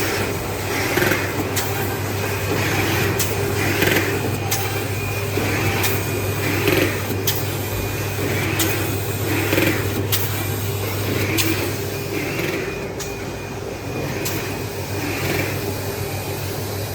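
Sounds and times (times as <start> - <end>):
machine clicks: 0.0 - 7.6, 8.2 - 13.3.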